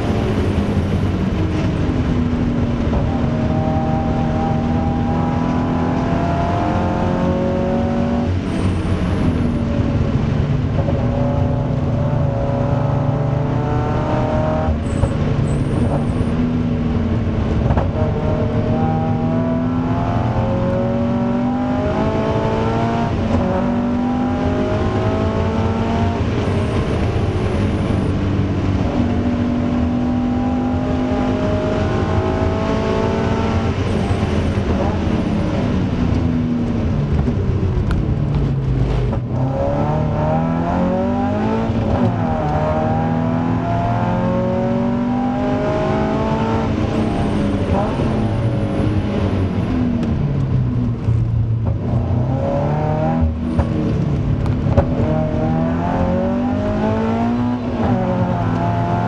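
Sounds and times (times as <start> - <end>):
car engine at full throttle: 0.0 - 59.0.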